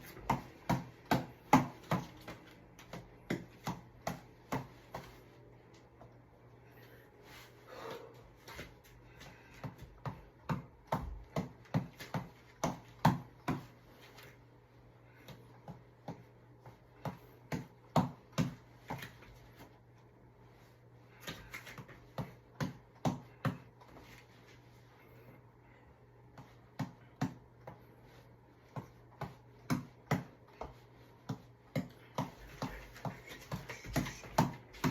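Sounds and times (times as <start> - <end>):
reflex ball being punched: 0.0 - 5.1, 9.6 - 13.8, 15.2 - 19.2, 21.2 - 23.9, 26.3 - 27.9, 28.6 - 34.9.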